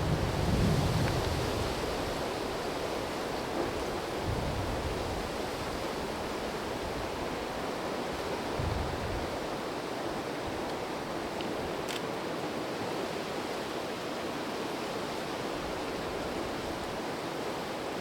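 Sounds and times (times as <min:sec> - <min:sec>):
wind buffeting microphone: 0:00.0 - 0:07.5
wind rushing through trees: 0:00.0 - 0:18.0.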